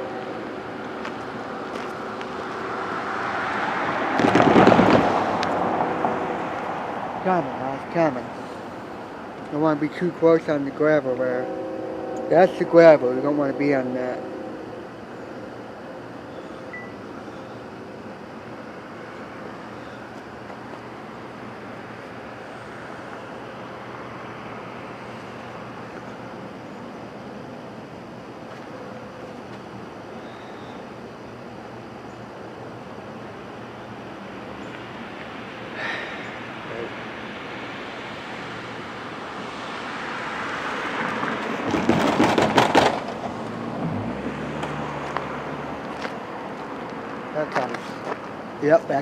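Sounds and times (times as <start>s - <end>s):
faint low engine drone: 0.0s - 41.8s
distant freight train rumble: 0.0s - 49.0s
motor vehicle passing: 0.0s - 49.0s.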